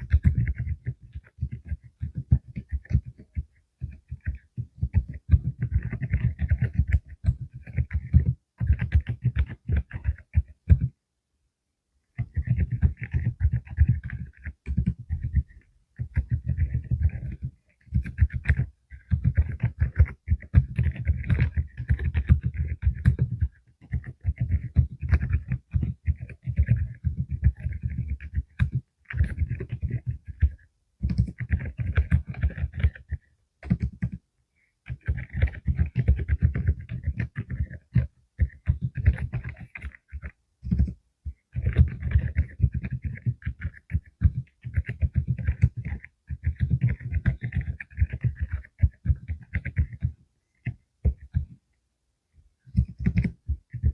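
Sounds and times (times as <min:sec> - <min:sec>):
muted keyboard keystrokes: 0:00.0 - 0:11.0, 0:12.2 - 0:34.2, 0:34.9 - 0:51.6, 0:52.7 - 0:53.9.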